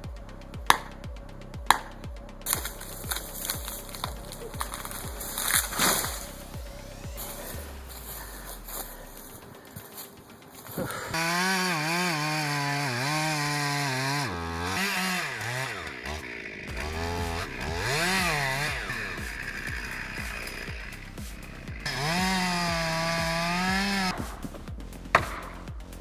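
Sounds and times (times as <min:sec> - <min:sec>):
chainsaw revving in a cut: 0:11.1 - 0:20.9, 0:21.8 - 0:24.2.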